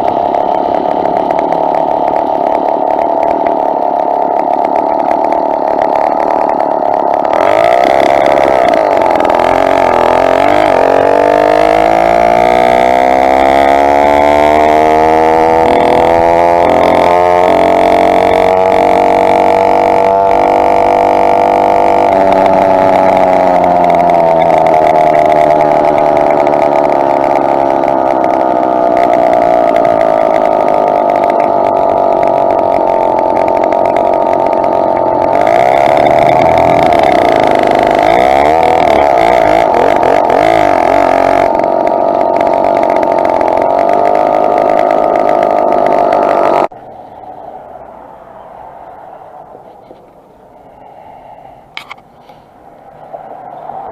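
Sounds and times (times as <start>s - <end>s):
two-stroke engine running: 0.0s - 48.0s.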